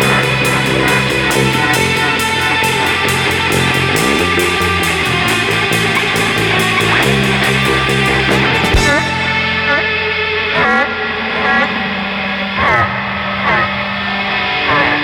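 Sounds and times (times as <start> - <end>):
cymbal beat: 0.0 - 10.8
bass guitar: 0.0 - 15.0
electric guitar chords: 0.0 - 15.0.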